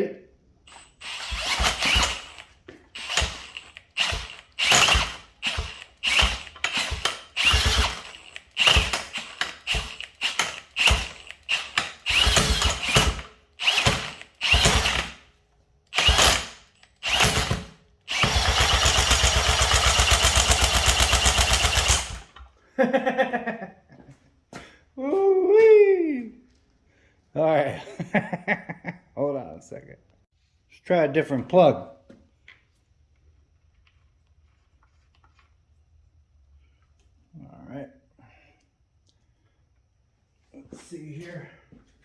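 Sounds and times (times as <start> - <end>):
power drill spinning: 0.7 - 22.5.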